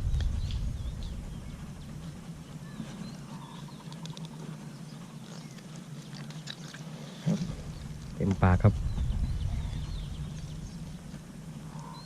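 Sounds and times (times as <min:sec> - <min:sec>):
low rumble: 0:00.0 - 0:03.5, 0:07.4 - 0:12.0
small clicks: 0:03.8 - 0:04.4.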